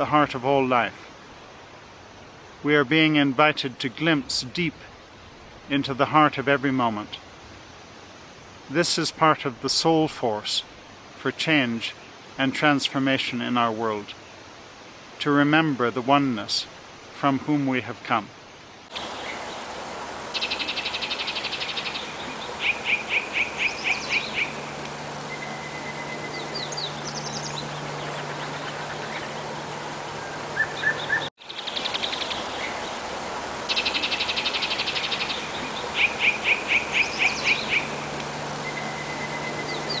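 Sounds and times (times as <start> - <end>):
steady outdoor hiss: 0.0 - 40.0
wild birds singing: 18.2 - 40.0.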